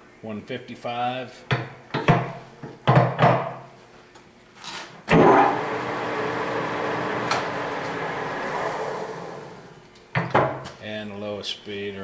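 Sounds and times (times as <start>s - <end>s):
lathe gear hum: 5.1s - 9.8s.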